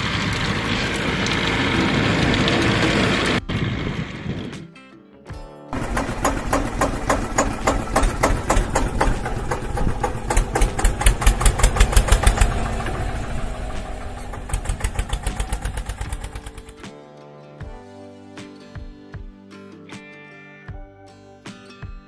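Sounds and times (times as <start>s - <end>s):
tractor engine chugging: 0.0s - 3.7s, 5.8s - 16.8s.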